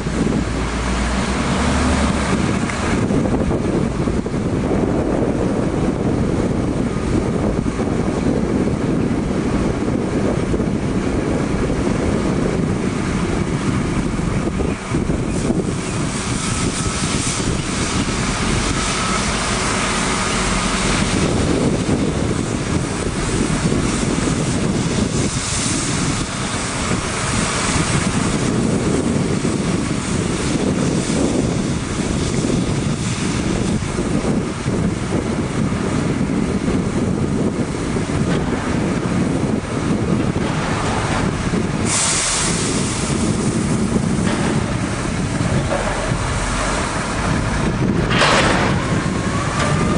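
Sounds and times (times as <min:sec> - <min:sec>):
truck engine running: 0:00.0 - 0:49.9
wind buffeting microphone: 0:00.0 - 0:49.9
water spraying: 0:11.0 - 0:49.9.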